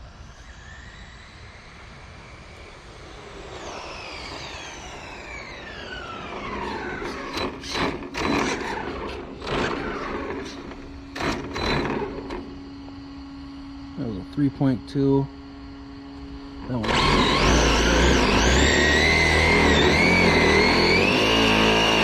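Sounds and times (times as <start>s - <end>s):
electric motor whining: 2.5s - 14.2s, 15.4s - 22.0s
short bursts of rough noise: 6.5s - 12.8s, 16.6s - 22.0s.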